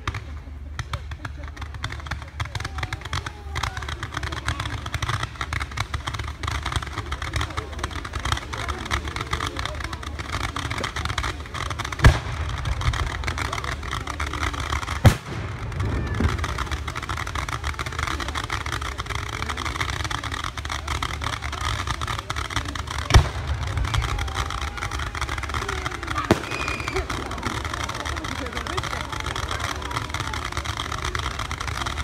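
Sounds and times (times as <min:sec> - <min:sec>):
firework shells bursting: 0:01.6 - 0:32.0
steady low rumble: 0:04.7 - 0:21.7, 0:22.6 - 0:32.0.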